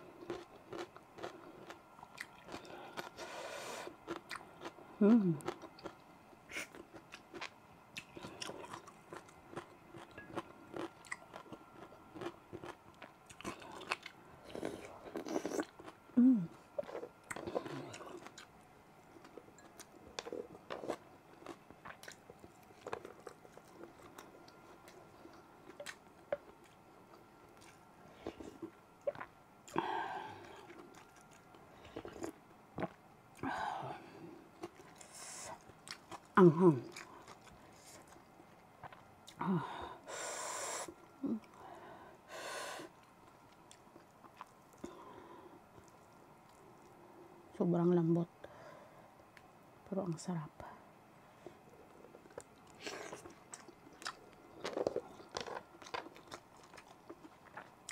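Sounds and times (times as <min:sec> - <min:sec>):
chewing and biting: 0:52.0 - 0:57.9.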